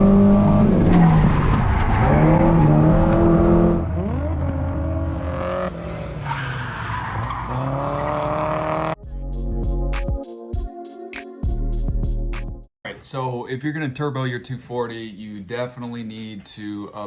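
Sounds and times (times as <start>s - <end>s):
car engine revving: 0.0s - 9.0s.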